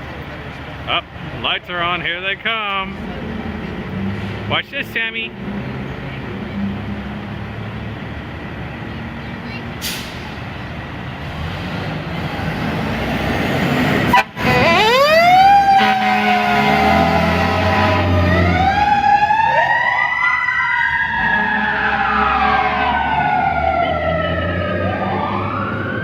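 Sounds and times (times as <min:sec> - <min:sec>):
fire engine engine: 0:00.0 - 0:26.0
siren winding up and falling: 0:14.5 - 0:26.0.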